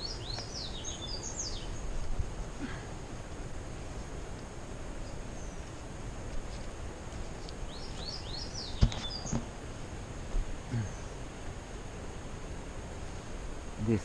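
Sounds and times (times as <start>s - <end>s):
steady outdoor hiss: 0.0s - 14.0s
bird singing falling notes: 7.7s - 9.6s.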